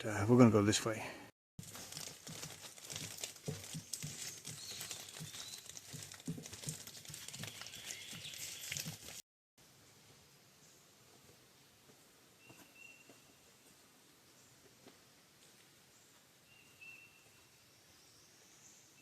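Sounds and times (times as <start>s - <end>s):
footsteps crackling on trail: 1.6s - 9.2s.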